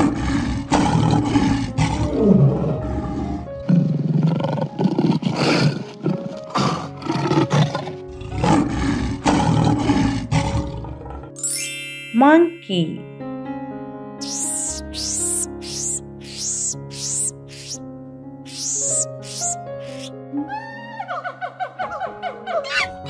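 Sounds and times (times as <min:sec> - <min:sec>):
lion roaring: 0:00.0 - 0:11.3
light background music: 0:00.6 - 0:23.0.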